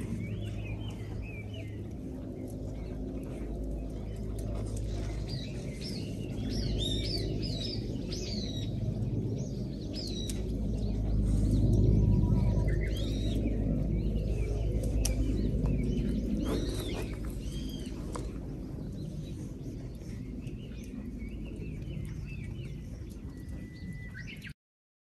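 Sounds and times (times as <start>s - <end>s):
birds chirping: 0.0s - 24.5s
steady low rumble: 0.0s - 24.5s.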